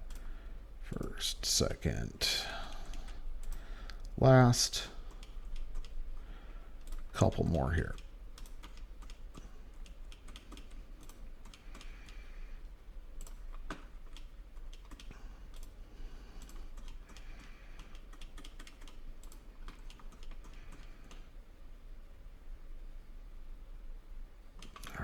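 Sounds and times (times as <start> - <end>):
low steady hum: 0.0 - 25.0
mouse and keyboard clicking: 5.1 - 6.0, 7.9 - 12.2, 13.2 - 15.8, 16.4 - 21.3.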